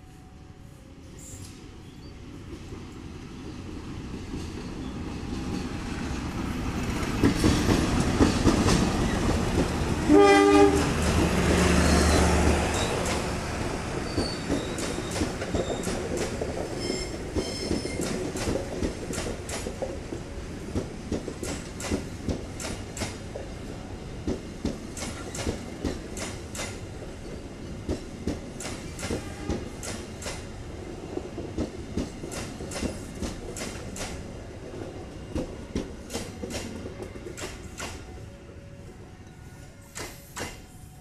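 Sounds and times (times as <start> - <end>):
train rumble: 0.8 - 41.0
locomotive horn blast: 10.0 - 11.0, 29.1 - 29.8
wheels clicking over rail joints: 14.0 - 23.5, 31.2 - 38.1.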